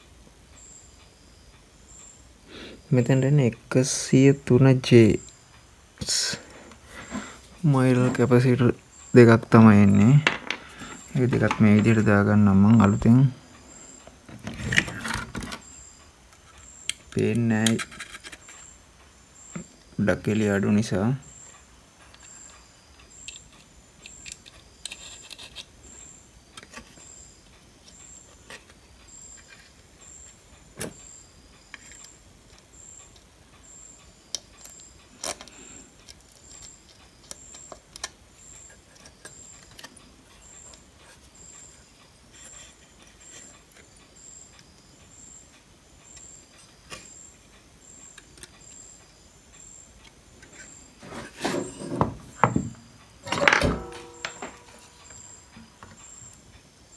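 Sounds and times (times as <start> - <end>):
tools clattering: 9.9 - 12.1, 51.0 - 55.7
small tools clicking and tapping: 10.2 - 12.1, 22.1 - 25.8, 34.3 - 41.3, 48.1 - 48.8, 51.4 - 56.1.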